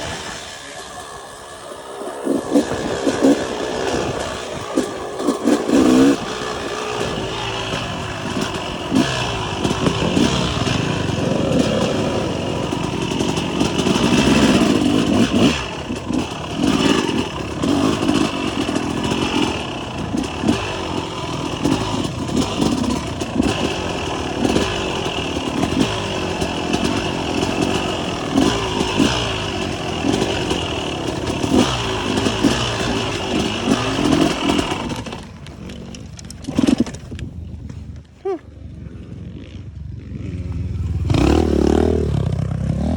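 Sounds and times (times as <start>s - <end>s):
wind rushing over microphone: 0.0s - 14.1s
dirt bike engine: 0.0s - 42.9s.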